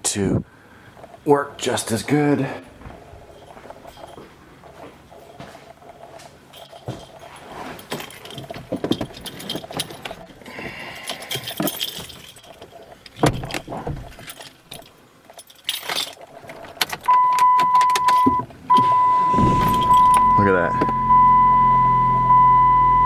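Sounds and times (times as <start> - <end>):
keys jangling: 3.3 - 18.3, 19.6 - 20.2
car warning chime: 17.1 - 23.0.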